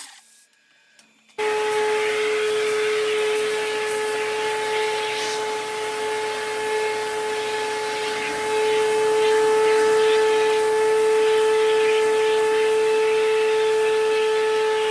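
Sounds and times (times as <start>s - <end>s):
lathe motor whine: 1.3s - 14.9s.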